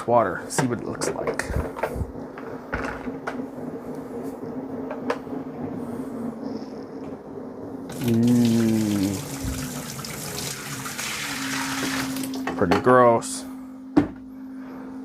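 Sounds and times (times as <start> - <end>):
faint steady hum: 0.0 - 15.0
dirty water pouring into sink: 7.9 - 12.4.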